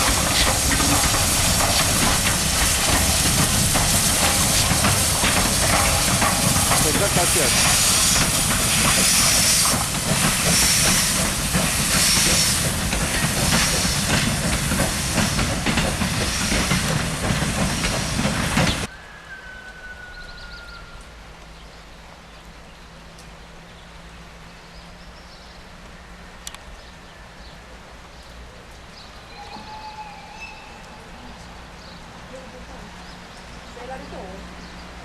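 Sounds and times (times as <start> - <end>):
steam locomotive venting steam: 0.0 - 18.9.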